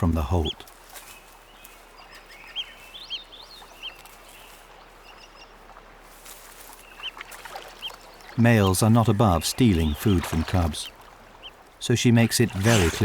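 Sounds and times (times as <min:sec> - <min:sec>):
faint outdoor ambience: 0:00.0 - 0:13.0
otters chirping: 0:08.4 - 0:13.0.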